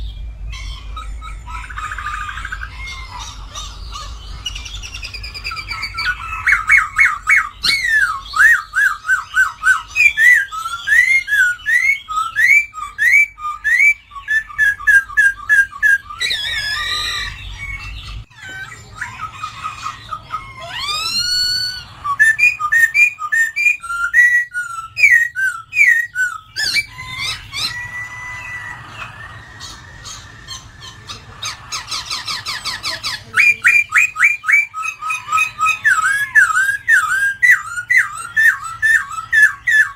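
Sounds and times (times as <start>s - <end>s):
bird singing whistled phrases: 4.0s - 18.2s, 20.6s - 31.0s, 32.4s - 39.9s.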